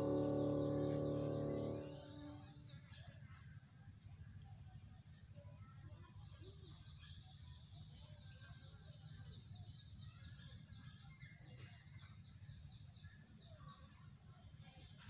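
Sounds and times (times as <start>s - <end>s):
steady low rumble: 0.0s - 2.0s
distant bird chirps: 0.0s - 2.4s
thin high steady tone: 0.0s - 2.4s.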